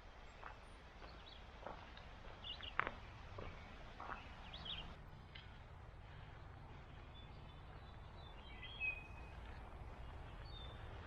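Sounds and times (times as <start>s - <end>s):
soft footfalls on a trail: 0.2s - 8.3s.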